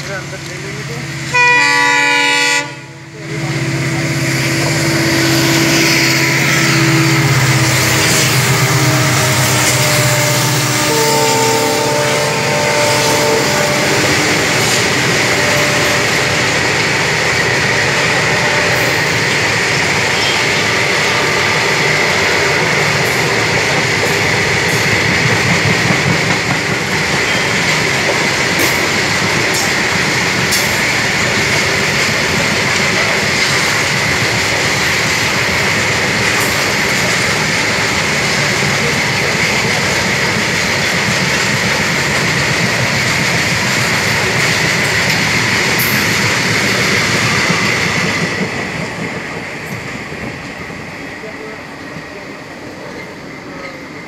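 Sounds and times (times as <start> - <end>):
locomotive engine drone: 2.7 - 26.0.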